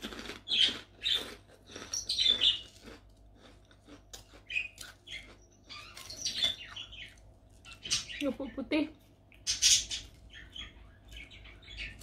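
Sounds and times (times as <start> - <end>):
crackers crunching while chewed: 0.0 - 8.0.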